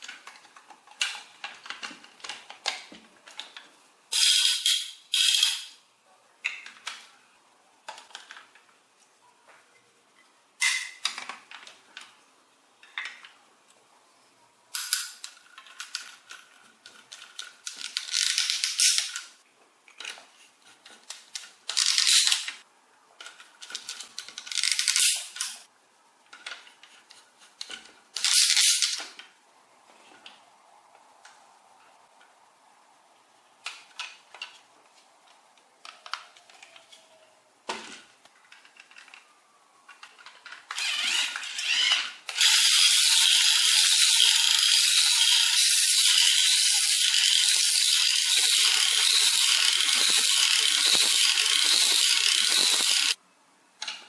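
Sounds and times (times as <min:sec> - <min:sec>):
plastic toy parts clicking: 0:00.0 - 0:05.8, 0:06.4 - 0:07.1, 0:07.8 - 0:08.7, 0:14.7 - 0:22.6, 0:23.2 - 0:25.7, 0:26.3 - 0:29.3, 0:35.8 - 0:53.2.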